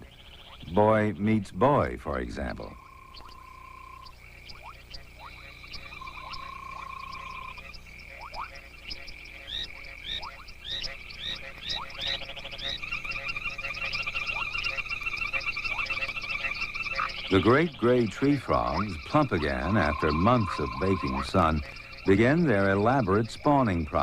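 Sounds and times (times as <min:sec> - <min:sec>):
frogs high trill: 0:00.0 - 0:24.0
frogs short rising chirps: 0:00.0 - 0:24.0
fast-pulsing frog trill: 0:02.4 - 0:24.0.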